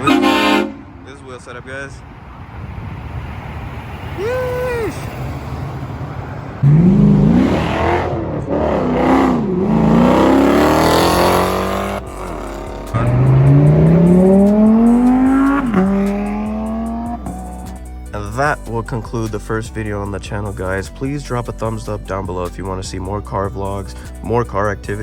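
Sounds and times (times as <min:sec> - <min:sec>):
car engine accelerating hard: 0:02.2 - 0:18.1.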